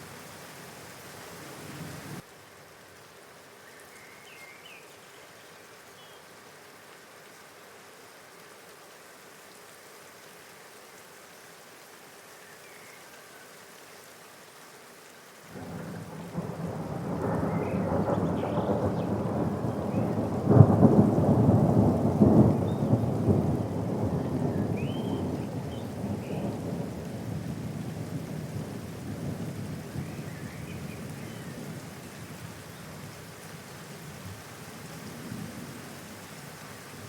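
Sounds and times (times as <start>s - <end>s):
steady rain: 0.0s - 37.0s
thunder rumbling: 15.6s - 31.8s.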